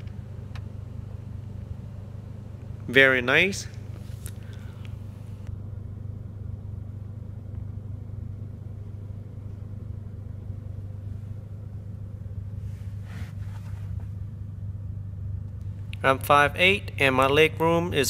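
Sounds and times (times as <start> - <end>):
car engine idling: 0.0 - 18.0
rustle of movement: 12.6 - 14.2.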